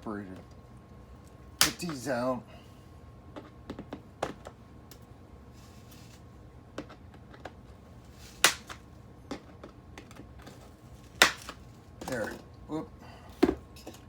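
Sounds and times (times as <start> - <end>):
hand tools clicking and snapping: 11.2 - 12.2.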